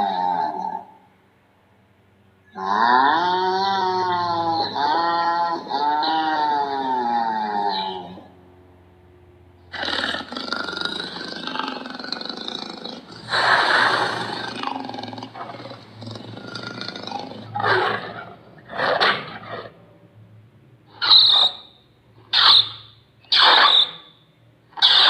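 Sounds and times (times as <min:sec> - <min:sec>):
large animal roaring: 0:00.0 - 0:01.0, 0:02.5 - 0:08.4, 0:09.7 - 0:19.8.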